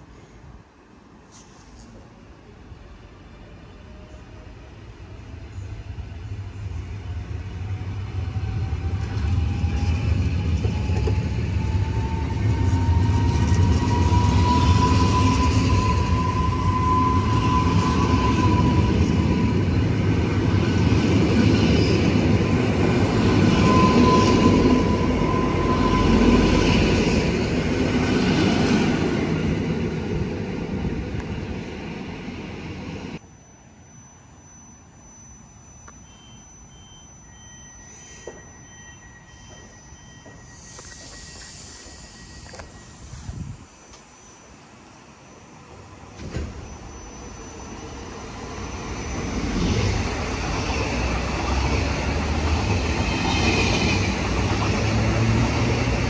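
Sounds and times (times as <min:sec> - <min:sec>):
train wheels rumbling on rail: 0:05.5 - 0:33.2, 0:45.7 - 0:56.0
faint steady tones: 0:33.2 - 0:51.8
high motor whine: 0:39.6 - 0:56.0.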